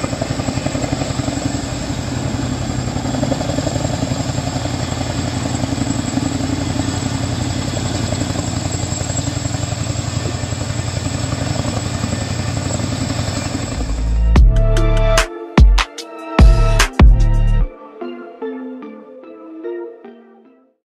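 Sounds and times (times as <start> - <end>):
helicopter rotors chopping: 0.0 - 14.9
music with heavy bass and beats: 13.9 - 17.7.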